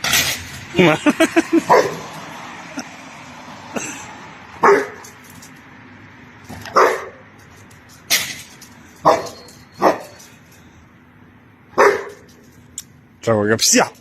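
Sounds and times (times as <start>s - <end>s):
dog barking: 1.7s - 2.1s, 4.6s - 5.0s, 6.7s - 7.3s, 9.0s - 10.2s, 11.8s - 12.3s.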